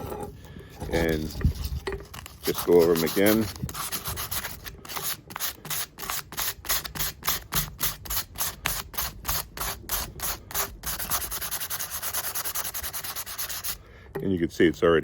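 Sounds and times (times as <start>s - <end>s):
sandpaper rubbing on steel: 0.9s - 13.8s.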